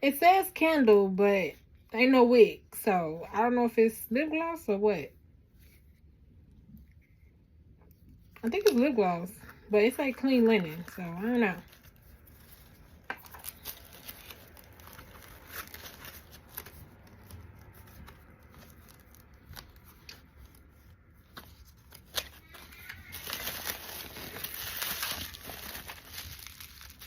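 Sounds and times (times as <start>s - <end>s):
packaging crinkling and rustling: 8.6s - 27.0s.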